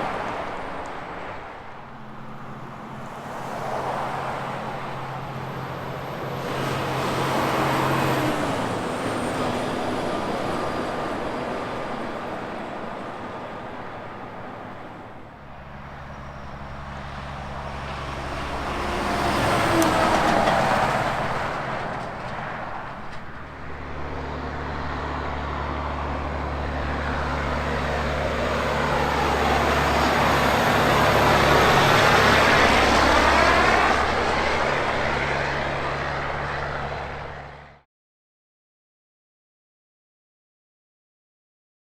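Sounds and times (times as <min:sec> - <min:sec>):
vehicles passing by: 0:00.0 - 0:37.8
low diesel engine drone: 0:04.4 - 0:37.8.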